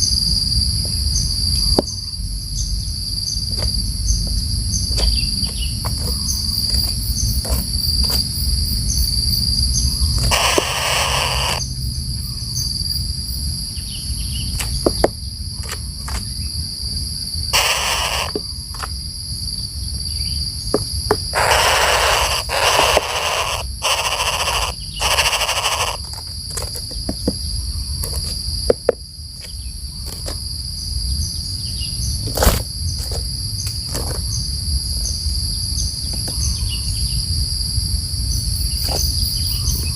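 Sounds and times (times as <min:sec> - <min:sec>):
insects droning: 0:00.0 - 0:39.9
short bursts of noise: 0:10.2 - 0:11.7, 0:17.5 - 0:18.9, 0:21.3 - 0:26.2.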